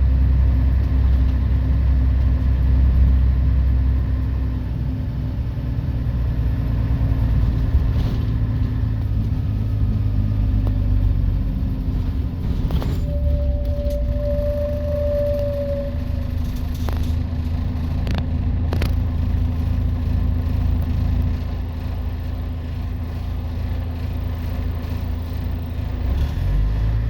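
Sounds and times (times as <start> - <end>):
diesel bus engine rumble: 0.0 - 27.0
steady high tone: 13.0 - 17.1.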